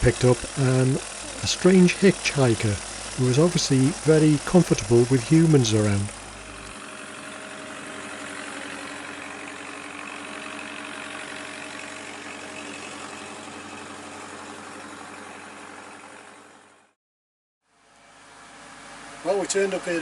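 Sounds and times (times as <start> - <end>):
engine humming: 0.0 - 16.9.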